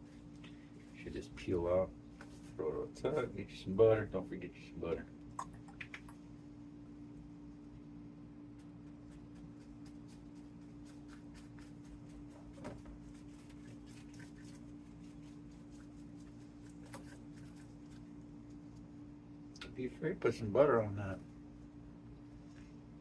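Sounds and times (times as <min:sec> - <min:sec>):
steady low hum: 0:00.0 - 0:23.0
brush strokes on pastry: 0:08.6 - 0:18.9.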